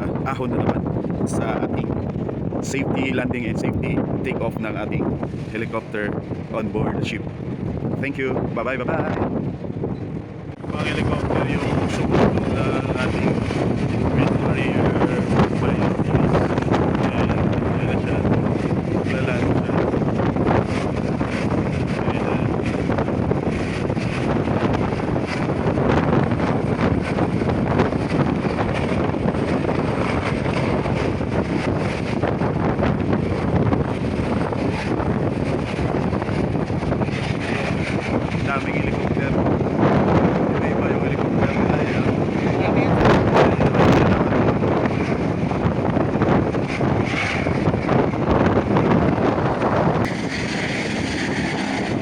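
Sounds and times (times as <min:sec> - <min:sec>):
helicopter rotor and engine: 0:00.0 - 0:52.0
wind buffeting microphone: 0:00.0 - 0:52.0.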